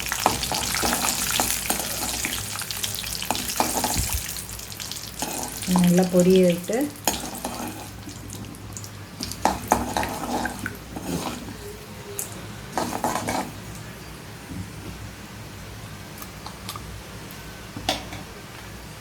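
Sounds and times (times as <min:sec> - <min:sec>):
seeds spluttering in hot oil: 0:00.0 - 0:11.4.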